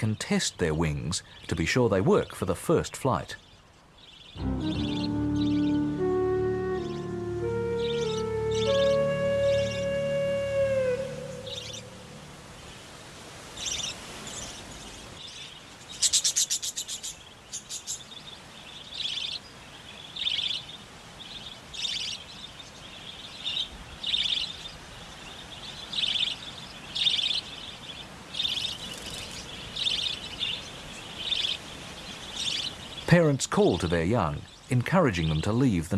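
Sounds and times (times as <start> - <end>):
budgerigars chirping: 4.1 - 10.2, 28.4 - 34.6.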